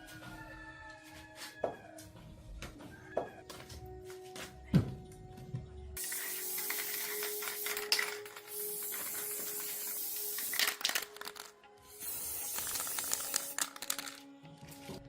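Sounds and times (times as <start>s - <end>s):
faint background music: 0.0s - 15.0s
steady hiss: 6.0s - 10.8s.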